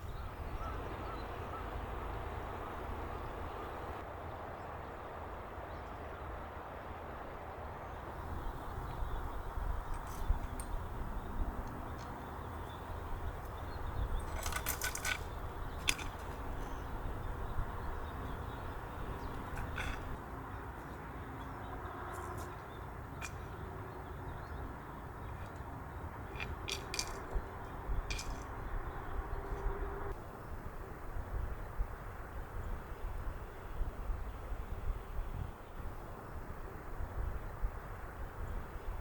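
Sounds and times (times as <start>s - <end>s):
sharp ticks and clicks: 25.4s - 28.8s.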